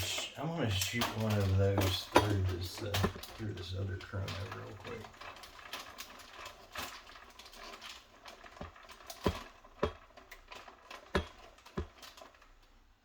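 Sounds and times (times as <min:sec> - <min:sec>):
equipment clicks and knocks: 0:00.9 - 0:05.2, 0:08.5 - 0:12.2.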